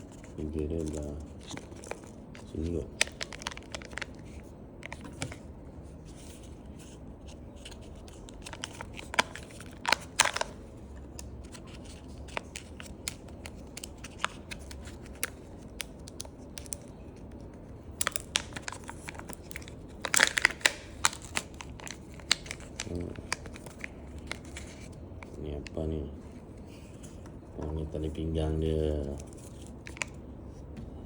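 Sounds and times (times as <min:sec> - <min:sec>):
plastic wrapping crinkling: 0:00.1 - 0:05.5, 0:07.6 - 0:10.6, 0:18.0 - 0:25.8, 0:28.9 - 0:30.2.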